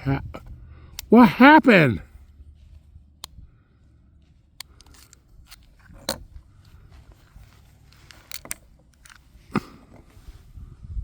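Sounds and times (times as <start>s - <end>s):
low wind rumble: 0.0s - 1.2s, 2.0s - 11.0s
pistol metallic clicks: 4.6s - 6.2s.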